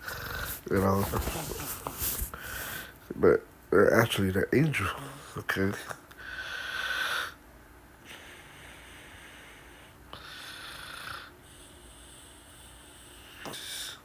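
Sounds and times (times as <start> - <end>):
man breathing heavily: 0.0 - 3.0.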